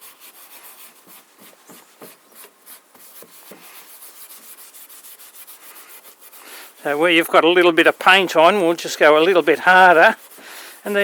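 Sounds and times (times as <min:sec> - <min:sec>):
hand rubbing wood swishes: 0:00.0 - 0:11.0.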